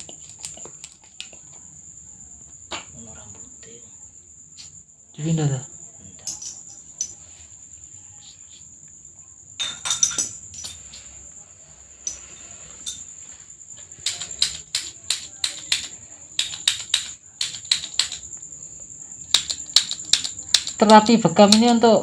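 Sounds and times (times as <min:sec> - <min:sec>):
sharp clicks of cupping instruments: 0:14.0 - 0:18.4, 0:19.3 - 0:21.9.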